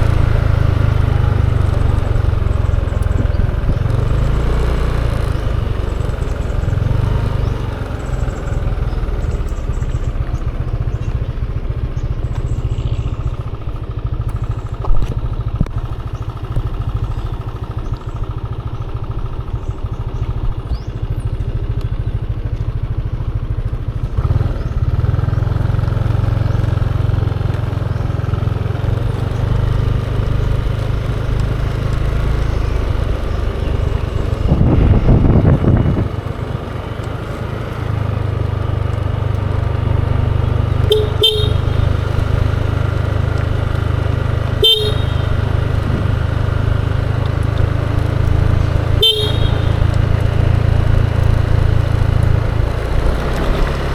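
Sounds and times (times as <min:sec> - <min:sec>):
road noise: 0:00.0 - 0:53.9
scooter engine running: 0:00.0 - 0:53.9
vehicle horn toots: 0:40.7 - 0:42.6, 0:44.2 - 0:46.2, 0:48.8 - 0:50.3.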